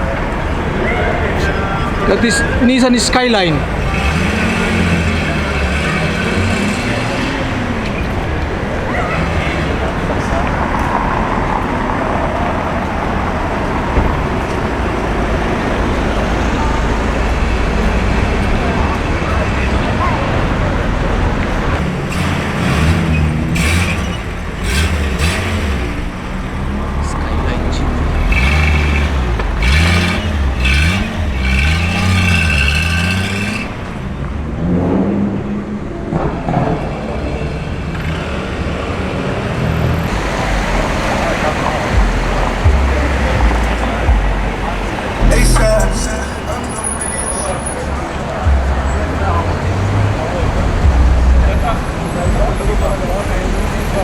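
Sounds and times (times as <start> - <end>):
car engine revving: 0.0 - 35.9, 36.8 - 54.0
street traffic rumble: 0.0 - 54.0.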